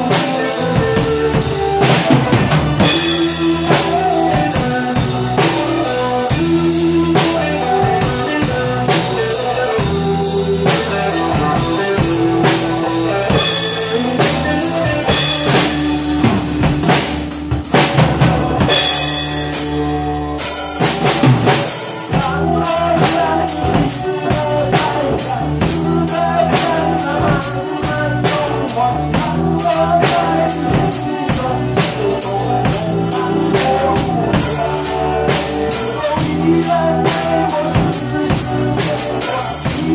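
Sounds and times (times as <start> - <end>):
drum kit playing: 0.0 - 39.9
pop music backing track: 0.0 - 39.9.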